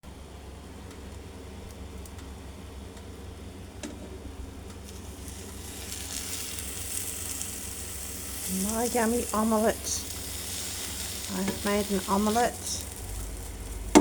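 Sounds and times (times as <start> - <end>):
steady low hum: 0.0 - 14.0
omelette sizzling in a pan: 4.8 - 14.0.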